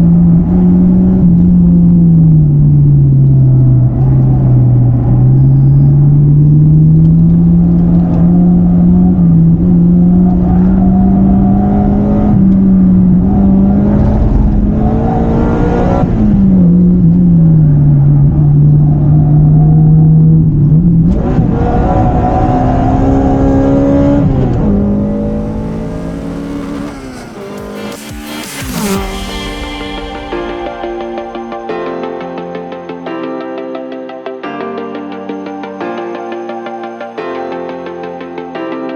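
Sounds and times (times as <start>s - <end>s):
car engine revving: 0.0s - 32.8s
music: 26.5s - 38.9s.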